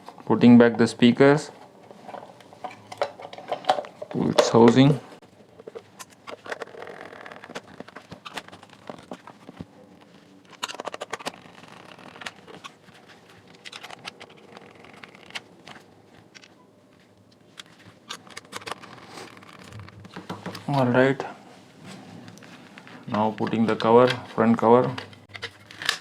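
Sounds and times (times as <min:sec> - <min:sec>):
plastic parts clicking and tapping: 0:02.1 - 0:04.9, 0:17.4 - 0:20.7.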